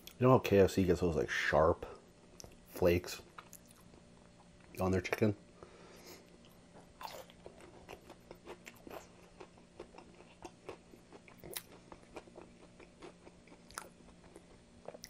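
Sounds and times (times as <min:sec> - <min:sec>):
chewing crispy fried chicken: 0:06.1 - 0:15.0.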